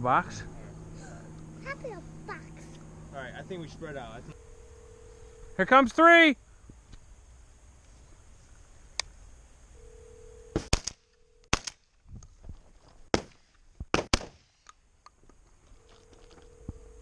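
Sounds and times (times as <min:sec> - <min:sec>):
shotgun shots: 0:10.6 - 0:11.8, 0:13.1 - 0:14.5.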